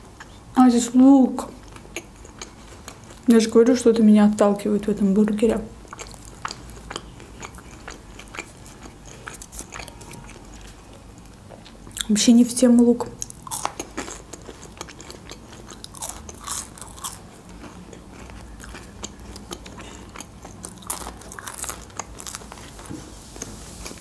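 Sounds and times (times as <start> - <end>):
crunching crispy fries: 5.9 - 11.0, 13.2 - 22.9.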